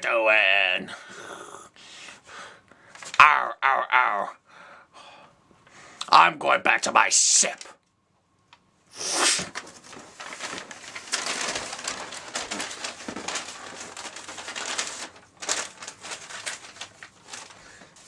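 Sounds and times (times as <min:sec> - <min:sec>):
paper bag crinkling: 0:02.9 - 0:03.2, 0:09.3 - 0:18.0.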